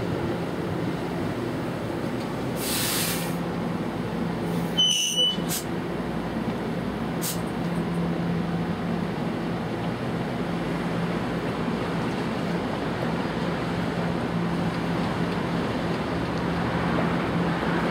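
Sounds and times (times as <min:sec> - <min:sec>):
standing train hum: 0:00.0 - 0:17.9
air hiss: 0:02.6 - 0:03.4, 0:04.5 - 0:05.7, 0:07.2 - 0:07.5
train brake squeal: 0:04.5 - 0:05.7.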